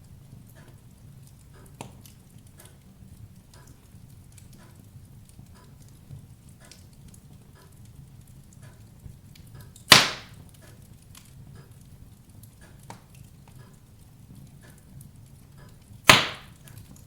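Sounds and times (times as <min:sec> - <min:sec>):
fire crackling: 0:00.0 - 0:17.0
loud sharp pop of fire: 0:09.9 - 0:10.4, 0:16.0 - 0:16.7.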